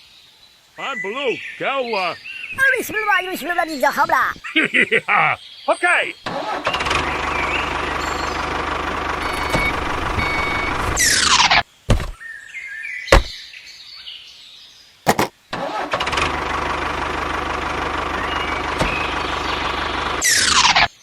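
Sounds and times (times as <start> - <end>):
small engine humming: 16.1 - 20.6.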